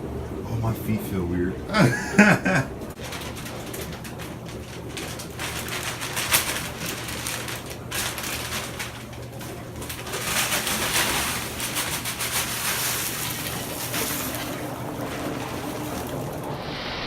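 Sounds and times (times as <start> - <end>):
dry ice bubbling in water: 12.6 - 16.8.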